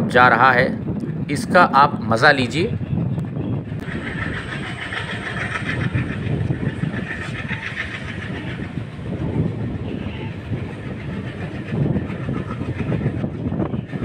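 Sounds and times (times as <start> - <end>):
rushing air: 0.0 - 14.0
train wheels rumbling on track: 0.0 - 14.0.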